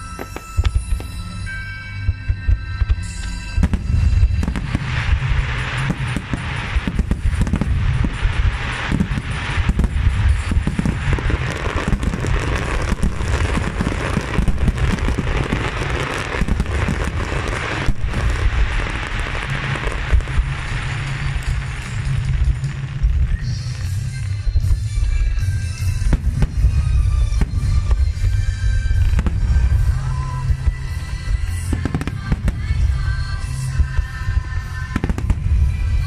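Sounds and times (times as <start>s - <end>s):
music: 0.0s - 36.0s
firework shells bursting: 2.8s - 36.0s.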